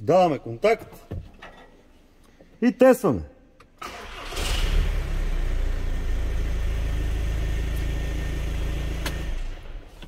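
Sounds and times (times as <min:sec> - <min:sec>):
diesel engine starting and idling: 0:03.8 - 0:10.0.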